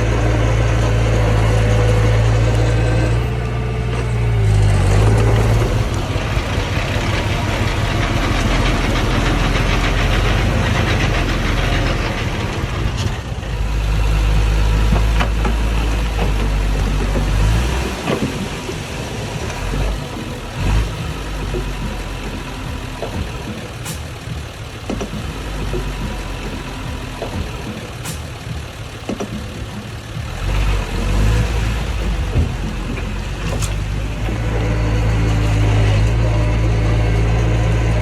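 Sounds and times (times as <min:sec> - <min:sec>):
diesel engine running: 0:00.0 - 0:38.0
metallic clanks: 0:00.0 - 0:38.0.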